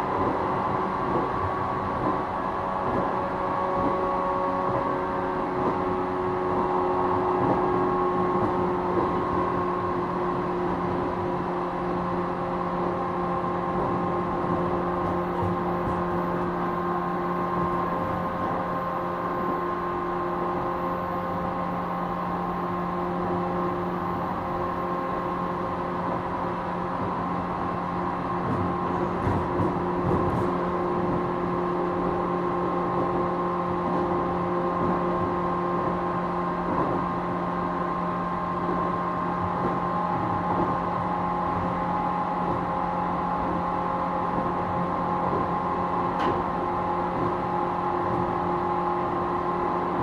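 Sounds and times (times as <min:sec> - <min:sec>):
wheel and rail rumble: 0:00.0 - 0:50.0
train motors whining: 0:13.8 - 0:35.2.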